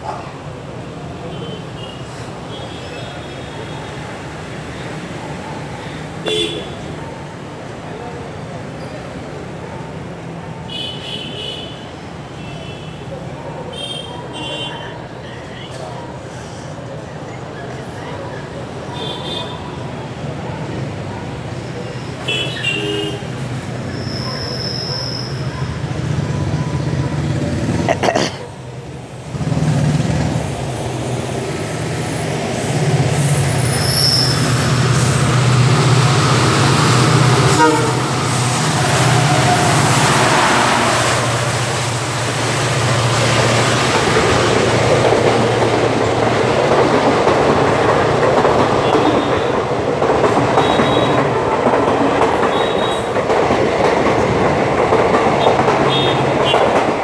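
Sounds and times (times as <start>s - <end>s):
train coaches rushing by: 0.0s - 57.0s
diesel locomotive engine droning: 28.7s - 57.0s
train wheels clickety-clack: 29.3s - 57.0s.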